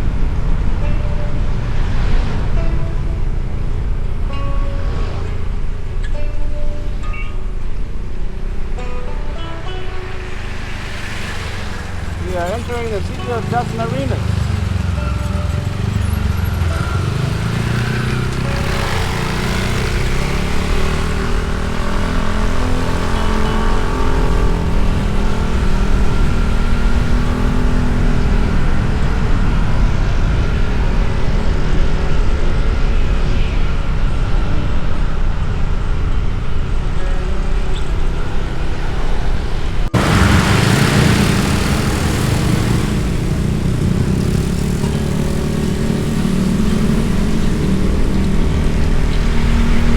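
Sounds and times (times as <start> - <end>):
wind and road noise: 0.0 - 49.9
motorbike engine running: 10.1 - 32.4, 37.8 - 49.9.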